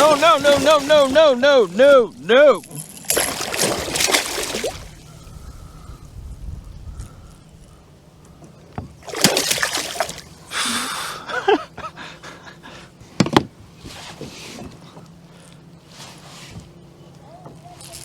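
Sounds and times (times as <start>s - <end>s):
fish thrashing and splashing: 2.6s - 5.2s, 9.0s - 10.4s.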